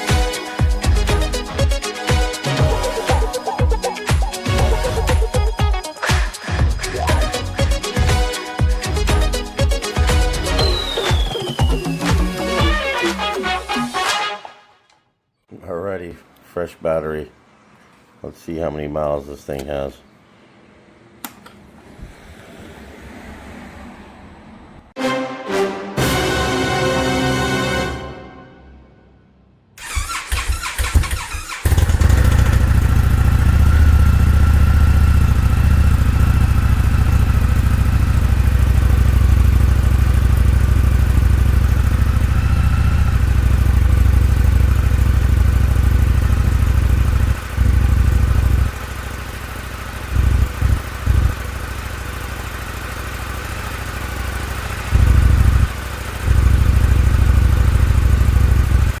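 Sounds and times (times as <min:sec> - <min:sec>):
motorcycle engine cranking on starter: 0:29.8 - 0:35.4
motorcycle engine running: 0:29.8 - 0:59.0.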